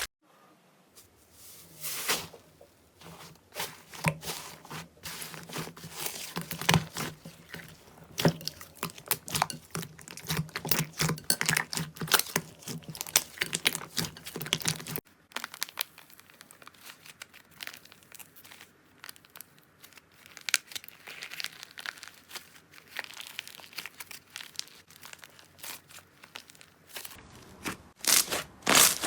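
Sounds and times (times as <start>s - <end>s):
slime crackling and popping: 3.6s - 29.0s.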